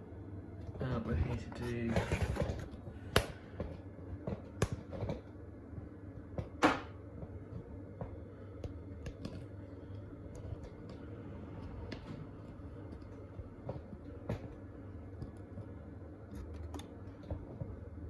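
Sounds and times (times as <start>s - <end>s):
faint steady hum: 0.0s - 18.0s
washing machine knocks and clicks: 6.4s - 7.0s.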